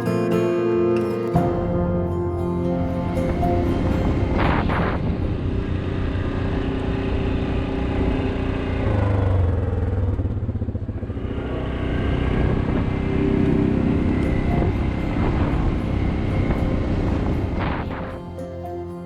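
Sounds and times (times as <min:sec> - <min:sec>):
atv engine running: 0:02.8 - 0:19.0.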